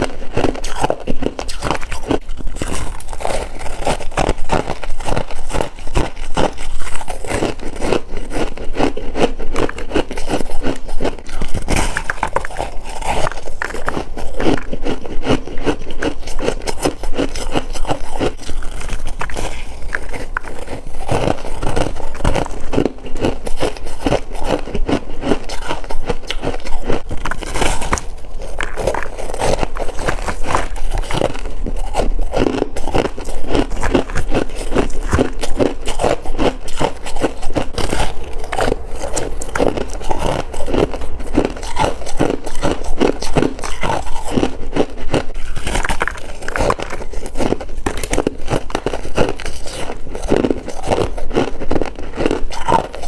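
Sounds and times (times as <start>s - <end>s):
frost crunching: 0.0s - 53.0s.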